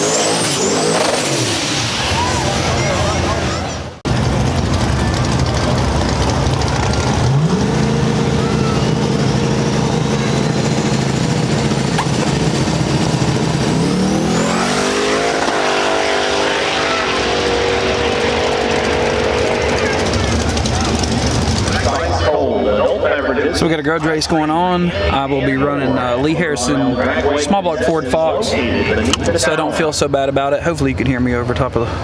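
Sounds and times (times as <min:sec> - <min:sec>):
race car engine revving: 0:00.0 - 0:22.3.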